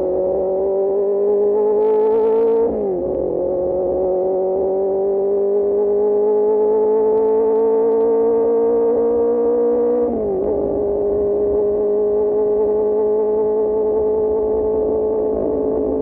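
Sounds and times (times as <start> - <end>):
motorcycle engine at high revs: 0.0 - 16.0.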